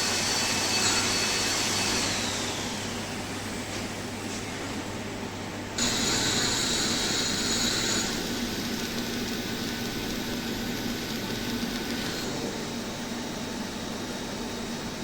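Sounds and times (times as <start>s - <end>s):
faint machine hum: 0.0s - 15.0s
welding machine hiss: 5.8s - 12.9s.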